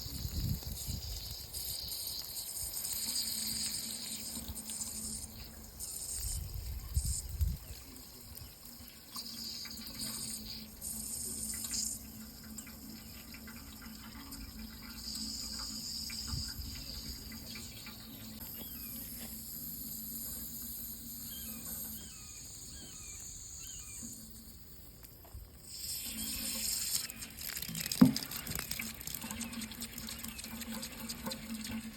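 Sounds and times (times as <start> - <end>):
water running: 0.0 - 22.0, 25.7 - 31.9
faint high chirps: 14.6 - 24.6.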